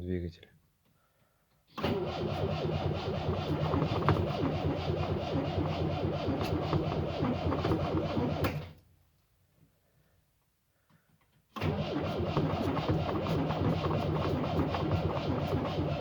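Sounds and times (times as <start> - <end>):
starter motor cranking engine: 1.7 - 8.8, 11.6 - 16.0.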